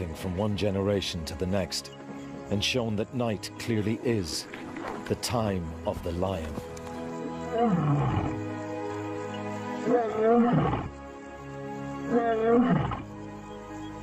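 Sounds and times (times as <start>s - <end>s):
background music: 0.0s - 14.0s
lion roaring: 7.5s - 8.4s, 9.8s - 10.9s, 12.1s - 13.1s.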